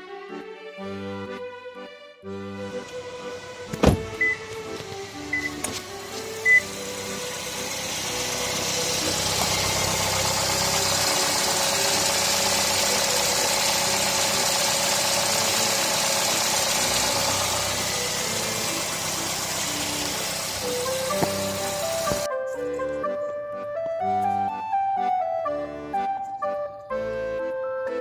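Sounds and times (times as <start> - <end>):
air conditioning blower rushing: 3.0 - 22.3.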